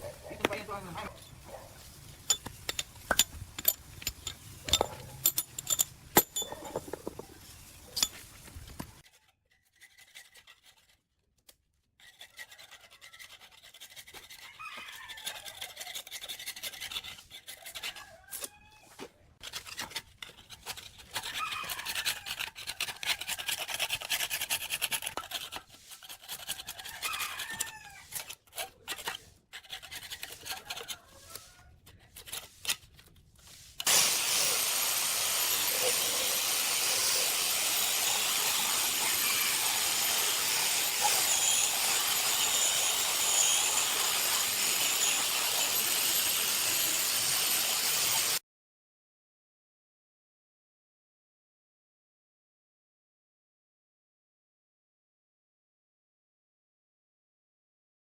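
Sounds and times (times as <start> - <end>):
metal parts clinking: 2.2 - 7.3, 7.9 - 8.3
stiff brush scrubbing: 12.0 - 45.9.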